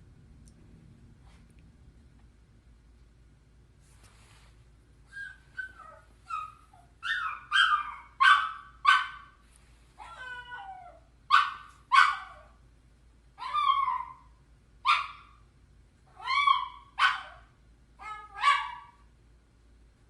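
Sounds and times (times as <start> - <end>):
dog yelping and whining: 5.1 - 9.3, 10.0 - 12.6, 13.4 - 15.4, 16.1 - 19.0.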